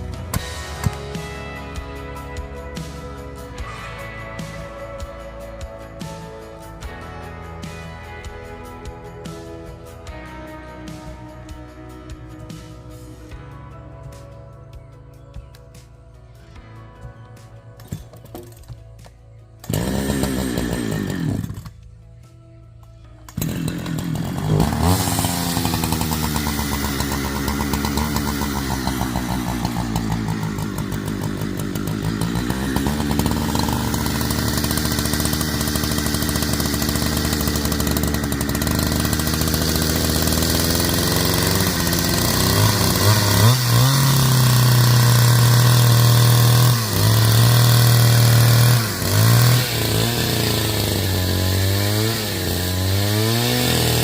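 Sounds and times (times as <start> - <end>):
chainsaw cutting wood: 0.0 - 13.5, 17.0 - 21.9, 23.2 - 54.0.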